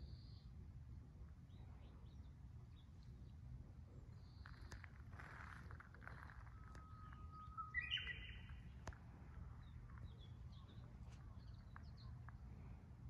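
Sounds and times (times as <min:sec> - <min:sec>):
bird singing whistle and flourish: 0:06.5 - 0:08.6.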